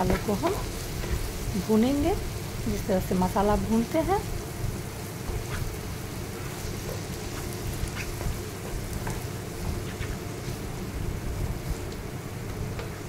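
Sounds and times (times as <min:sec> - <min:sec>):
masala sizzling in oil: 0:00.0 - 0:13.0
spatula scraping pan: 0:05.3 - 0:10.6.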